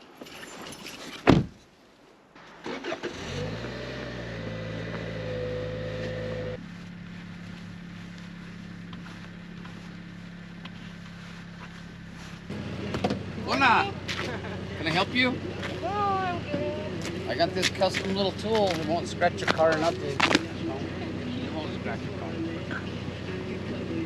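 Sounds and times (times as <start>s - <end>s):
car door thumping shut: 1.2s - 1.5s
car engine starting and idling: 2.4s - 24.0s.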